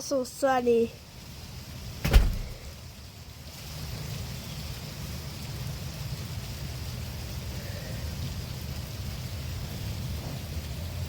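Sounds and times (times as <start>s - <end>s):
rain falling: 0.0s - 11.0s
sharp thump: 2.0s - 2.7s.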